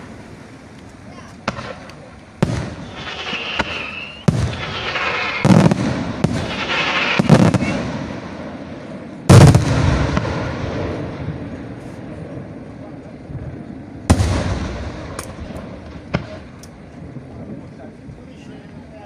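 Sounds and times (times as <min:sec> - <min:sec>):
firework shells bursting: 0:00.8 - 0:08.3.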